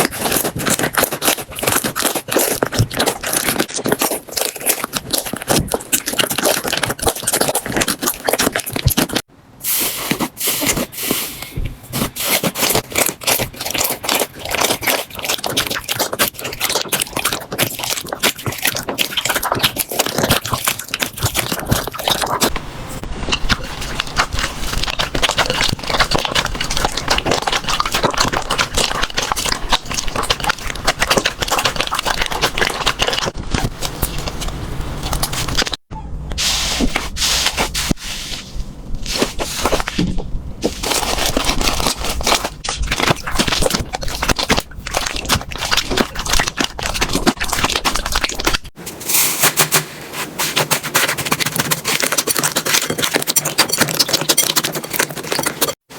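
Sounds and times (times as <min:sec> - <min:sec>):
slime crackling and popping: 0:00.0 - 0:09.3, 0:23.2 - 0:35.9, 0:39.1 - 0:48.8.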